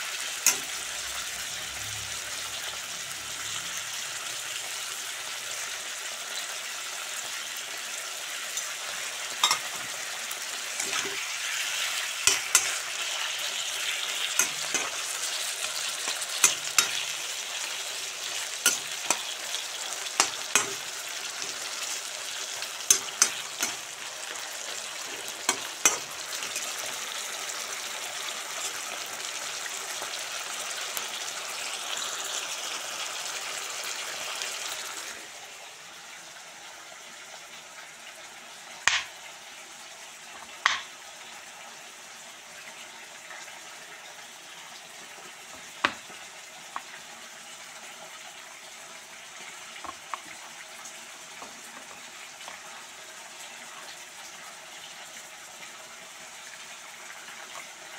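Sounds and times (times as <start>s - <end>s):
meat and onions sizzling: 0.0s - 57.9s
metal spatula clicking on pan: 0.4s - 0.8s, 9.4s - 9.7s, 12.2s - 12.8s, 14.4s - 15.0s, 16.1s - 17.1s, 20.2s - 20.8s, 22.9s - 23.9s, 40.6s - 40.9s.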